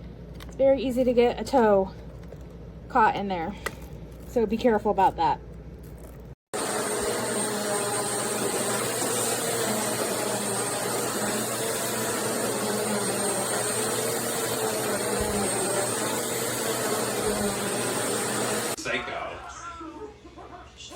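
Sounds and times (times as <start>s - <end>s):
vacuum cleaner running: 6.5s - 18.8s.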